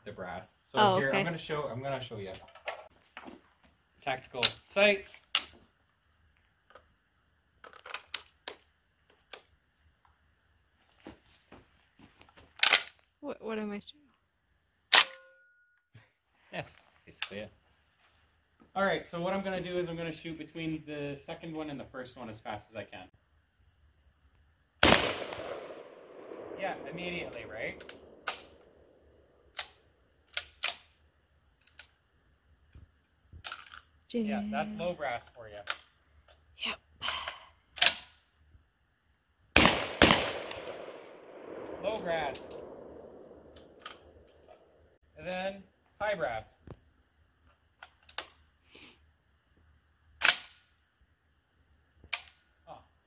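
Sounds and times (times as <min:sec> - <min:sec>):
shotgun handling clicks: 0:12.6 - 0:13.0, 0:27.8 - 0:28.7, 0:37.8 - 0:38.1, 0:42.3 - 0:44.6, 0:50.2 - 0:50.6.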